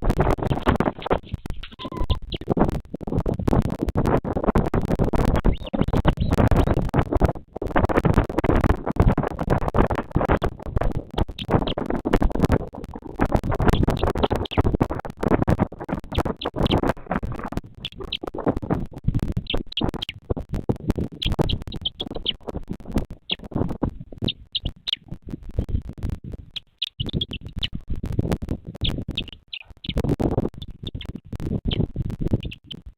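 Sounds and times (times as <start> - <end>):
wind buffeting microphone: 0.0 - 32.9
short high chirps: 1.6 - 2.2.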